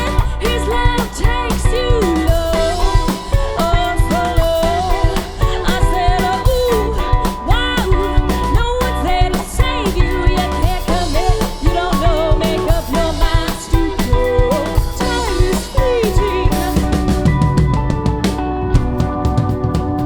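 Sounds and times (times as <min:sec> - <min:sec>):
bass: 0:00.0 - 0:20.0
bending melodic lead line: 0:00.0 - 0:20.0
drum kit beat: 0:00.0 - 0:20.0.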